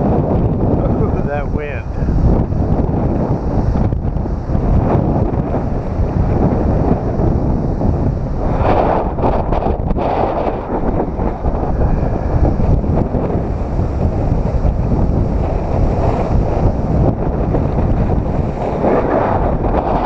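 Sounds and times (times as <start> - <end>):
surf breaking on rocks: 0.0 - 20.0
wind buffeting microphone: 0.0 - 20.0.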